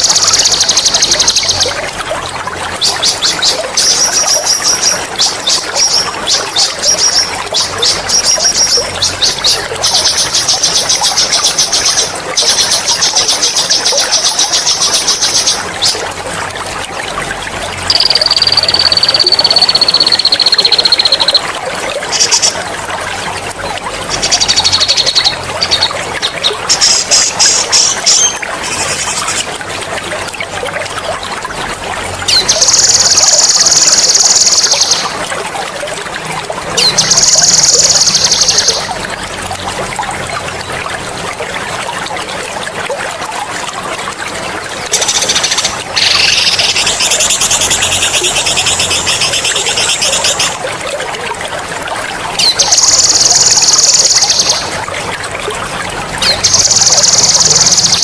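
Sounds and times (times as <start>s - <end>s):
trickling water: 0.0s - 58.0s
songbird trilling: 17.9s - 21.4s.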